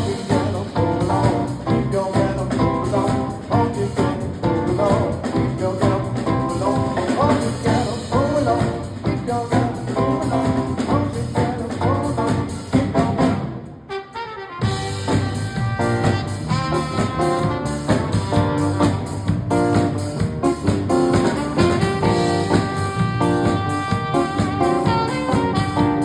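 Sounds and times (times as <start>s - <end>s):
live band with drum kit: 0.0s - 26.0s.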